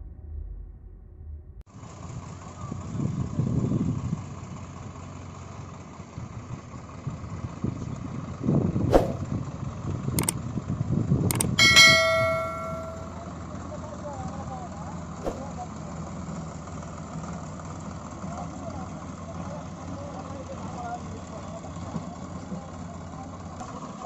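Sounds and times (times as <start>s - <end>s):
sharp clicks: 11.3s - 13.0s
steady pitched tone: 11.6s - 13.1s.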